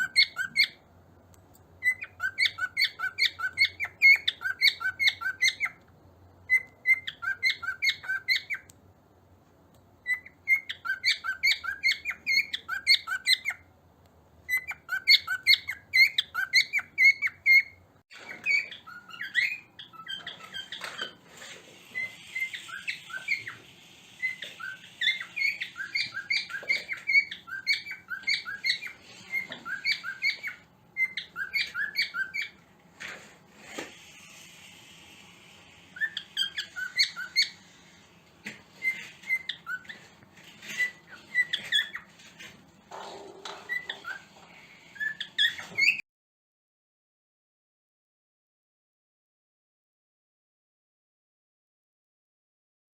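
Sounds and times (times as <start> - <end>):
cockatiels chirping: 0.0 - 0.9, 1.8 - 8.8, 10.0 - 13.7, 14.4 - 32.6, 35.8 - 46.0.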